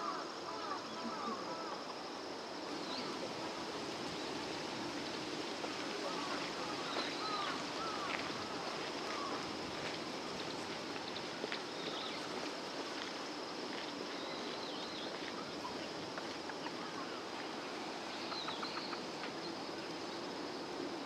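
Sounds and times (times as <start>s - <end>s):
insects chirring: 0.0s - 21.0s
bird calls: 6.1s - 9.4s, 18.2s - 19.5s.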